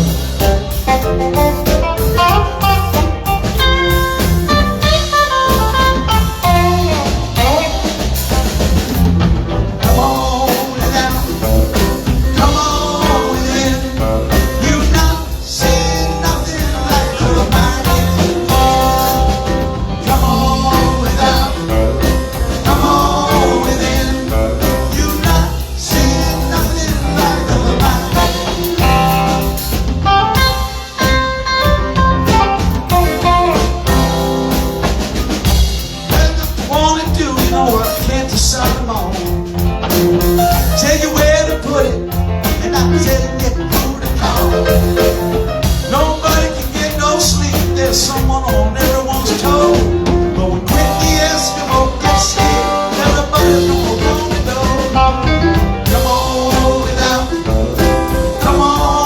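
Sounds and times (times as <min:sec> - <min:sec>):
drum kit: 0:00.0 - 0:59.0
electric guitar: 0:00.0 - 0:59.0
person singing: 0:09.8 - 0:34.7, 0:36.0 - 0:39.5, 0:40.3 - 0:59.0.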